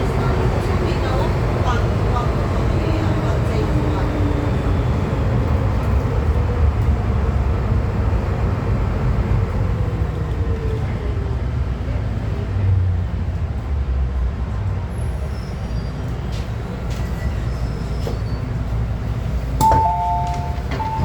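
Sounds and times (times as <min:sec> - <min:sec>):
train wheels rumbling on rail: 0:00.0 - 0:21.0
faint train motor tone: 0:19.6 - 0:21.0.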